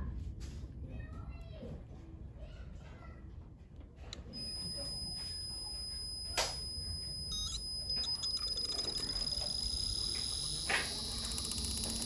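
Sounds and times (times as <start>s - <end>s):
air conditioner compressor whine: 4.1s - 12.0s.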